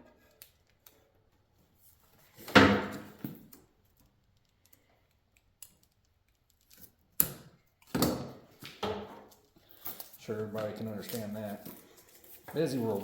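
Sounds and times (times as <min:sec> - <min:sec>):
cable sheath rustling: 0:09.3 - 0:13.0.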